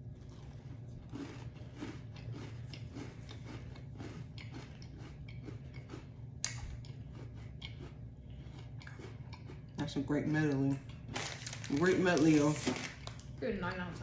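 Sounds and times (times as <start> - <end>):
crunchy cookie chewing: 0.0 - 13.4.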